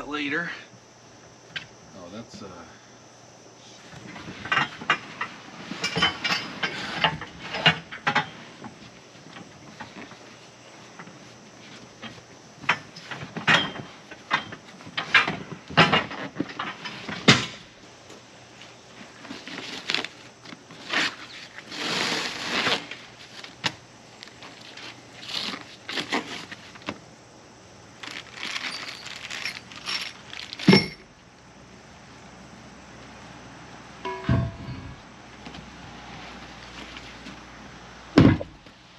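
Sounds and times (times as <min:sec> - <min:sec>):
packaging crackling and rustling: 0:19.2 - 0:26.9, 0:28.0 - 0:30.9
heavy thump: 0:34.1 - 0:35.1, 0:38.2 - 0:38.6.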